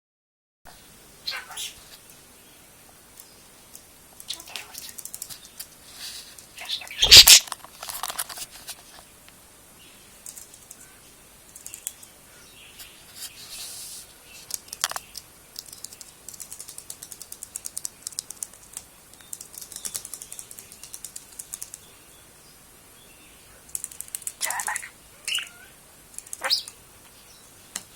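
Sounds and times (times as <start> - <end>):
budgerigar chattering: 6.6 - 7.5, 24.4 - 25.7, 26.3 - 26.7.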